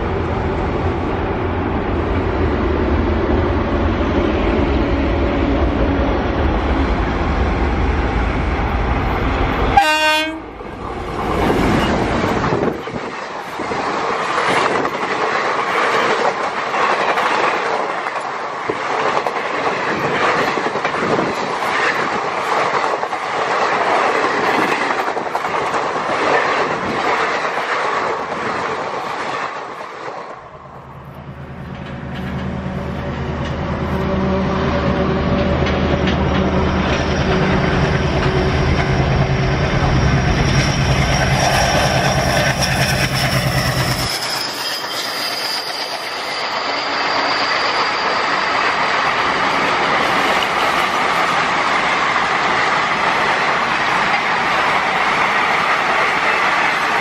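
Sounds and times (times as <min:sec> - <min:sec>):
diesel locomotive engine drone: 0:00.0 - 0:57.0
train wheel clatter: 0:10.7 - 0:30.4, 0:31.0 - 0:34.0, 0:35.3 - 0:57.0
high-pitched wheel squeal: 0:36.4 - 0:49.3.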